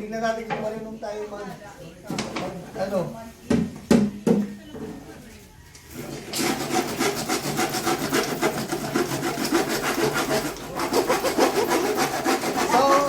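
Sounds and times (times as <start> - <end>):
hand saw cutting plywood: 6.2 - 13.0.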